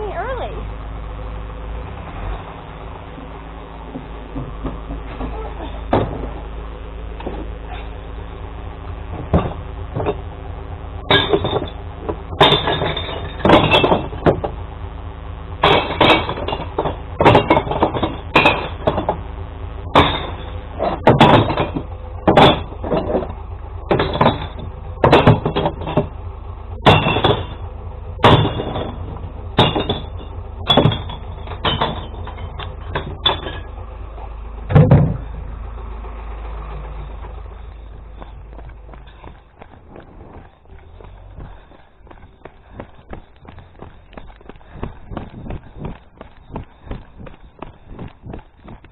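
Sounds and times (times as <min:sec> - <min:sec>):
truck engine idling: 0:00.0 - 0:48.9
glass bottles smashing in bin: 0:11.1 - 0:11.8, 0:12.4 - 0:14.4, 0:15.6 - 0:19.2, 0:19.9 - 0:23.3, 0:23.9 - 0:26.1, 0:26.8 - 0:27.6, 0:28.2 - 0:29.0, 0:29.6 - 0:33.7.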